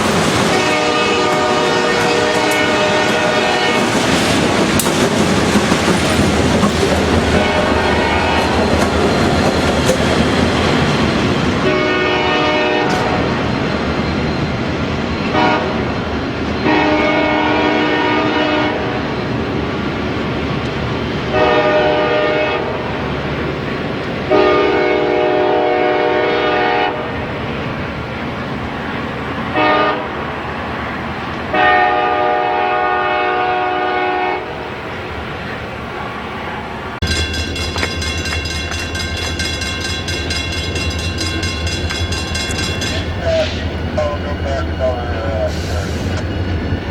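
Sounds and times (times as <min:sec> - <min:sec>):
train rumble: 0:00.0 - 0:46.9
locomotive air horn: 0:00.4 - 0:04.1, 0:07.2 - 0:08.6, 0:11.6 - 0:13.3, 0:15.2 - 0:16.0, 0:16.6 - 0:19.0, 0:21.3 - 0:22.9, 0:24.3 - 0:27.2, 0:29.5 - 0:30.2, 0:31.5 - 0:34.7.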